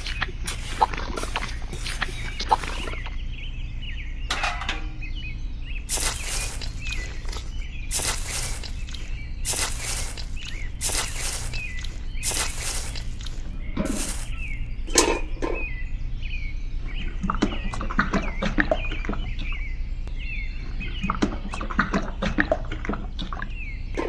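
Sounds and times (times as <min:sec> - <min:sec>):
steady low hum: 0:00.0 - 0:17.2
small birds chirping: 0:00.0 - 0:24.0.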